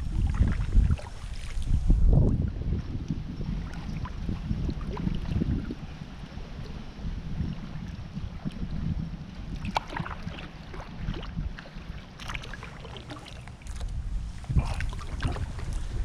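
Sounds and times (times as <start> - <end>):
water lapping against kayak hull: 0.0 - 16.0
wind buffeting microphone: 0.0 - 16.0
small splashes: 9.5 - 16.0.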